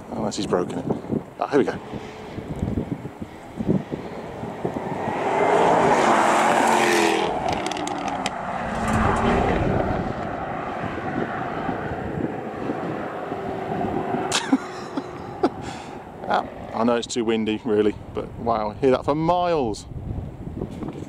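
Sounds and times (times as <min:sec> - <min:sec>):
sports car accelerating past: 0:01.7 - 0:16.8.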